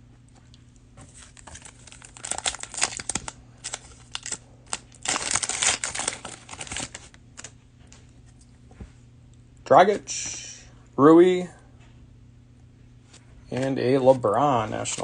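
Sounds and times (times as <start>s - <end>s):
plastic wrapping crinkling: 1.1s - 7.6s.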